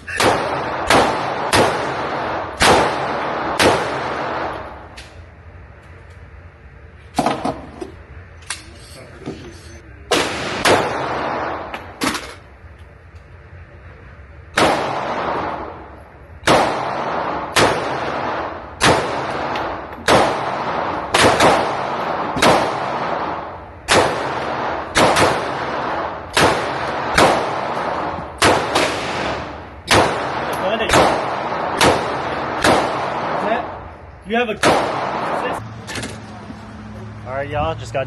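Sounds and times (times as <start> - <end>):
gunshots with ringing echo: 0.0 - 4.9, 10.1 - 12.1, 14.5 - 35.6.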